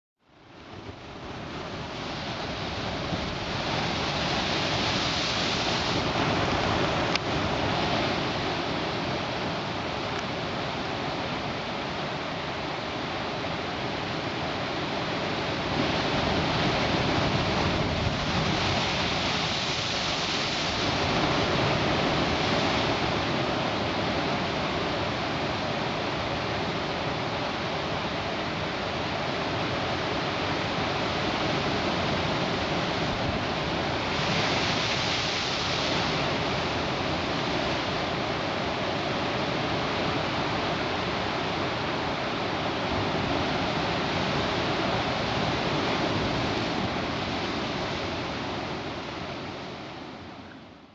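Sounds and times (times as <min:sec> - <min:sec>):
ocean surf washing: 0:00.4 - 0:50.9.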